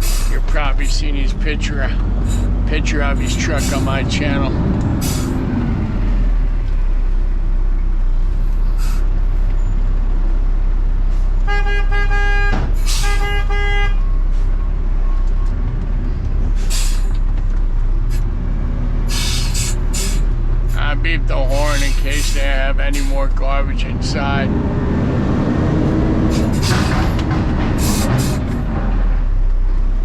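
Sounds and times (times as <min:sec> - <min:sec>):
air hissing: 0:00.0 - 0:00.4, 0:05.0 - 0:05.5, 0:12.8 - 0:13.4, 0:16.5 - 0:17.2, 0:19.1 - 0:20.4, 0:21.6 - 0:23.2, 0:26.2 - 0:27.2, 0:27.8 - 0:28.6
truck engine running: 0:00.0 - 0:30.0
garbage truck horn beeps: 0:11.4 - 0:14.3.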